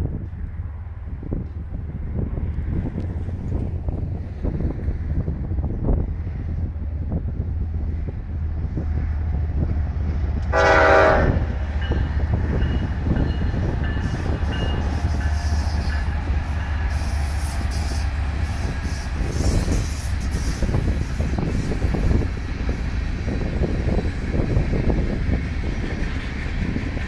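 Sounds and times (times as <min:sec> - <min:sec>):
diesel locomotives rumbling: 0:00.0 - 0:27.0
locomotive horn blast: 0:10.5 - 0:11.6.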